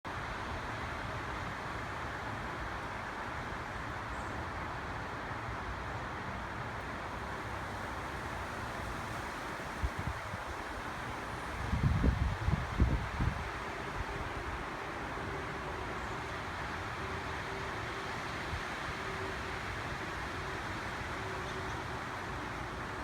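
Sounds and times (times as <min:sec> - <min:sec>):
leaves rustling in wind: 0:00.1 - 0:23.0
wind buffeting microphone: 0:11.6 - 0:14.5.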